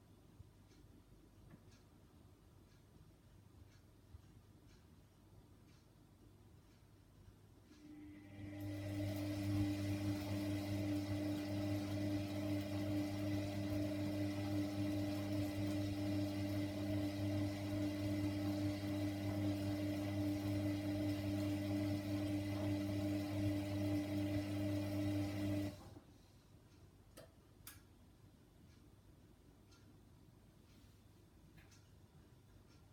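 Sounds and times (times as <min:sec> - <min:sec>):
washer dryer humming: 0:07.8 - 0:26.0.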